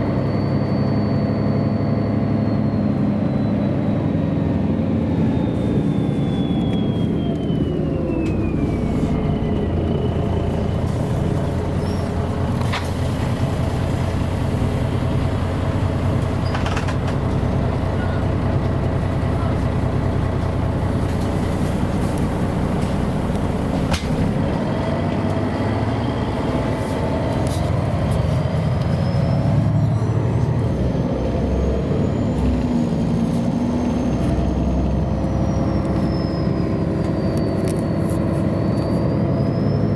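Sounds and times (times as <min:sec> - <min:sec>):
bus diesel engine drone: 0:00.0 - 0:39.9
road noise: 0:00.0 - 0:39.9.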